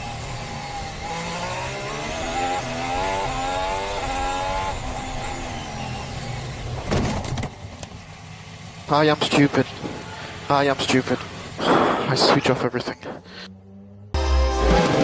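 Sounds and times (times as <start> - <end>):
racing car engine accelerating: 0.0 - 6.9, 13.0 - 15.0.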